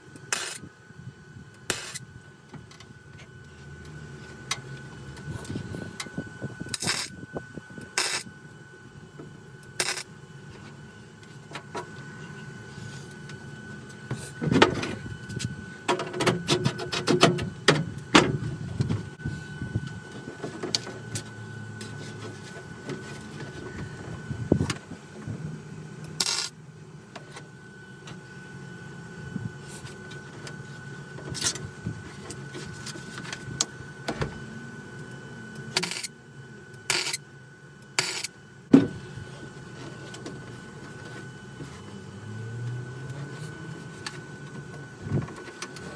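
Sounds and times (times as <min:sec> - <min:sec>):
faint steady whine: 0:00.0 - 0:45.9
crackling welds: 0:00.2 - 0:00.7, 0:01.6 - 0:02.0, 0:06.7 - 0:07.2, 0:07.9 - 0:08.3, 0:09.6 - 0:10.2, 0:26.1 - 0:26.6, 0:35.8 - 0:36.1, 0:36.9 - 0:37.2, 0:38.0 - 0:38.4.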